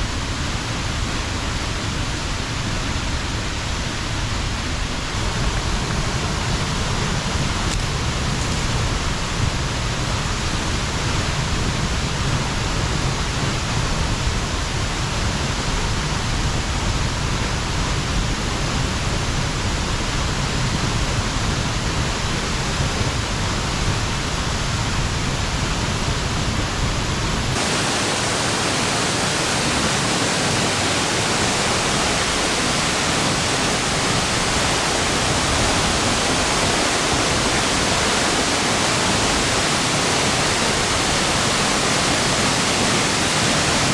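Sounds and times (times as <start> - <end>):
waterfall rushing: 0.6 - 11.2, 23.1 - 43.9.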